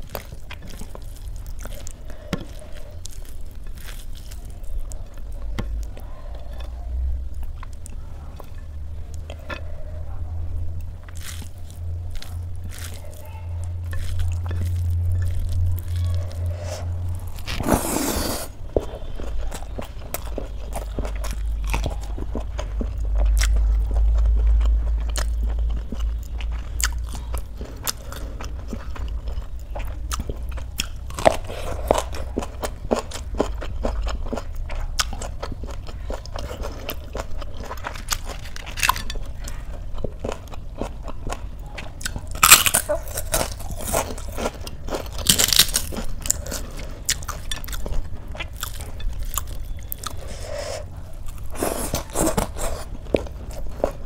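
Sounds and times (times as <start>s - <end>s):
person chewing wetly: 0.0s - 54.0s
crunching bites: 40.0s - 50.5s.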